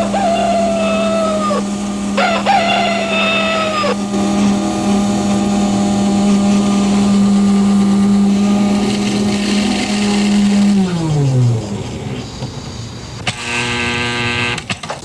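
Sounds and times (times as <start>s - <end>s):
rooster crowing: 0.0s - 4.1s
low hum: 0.0s - 14.6s.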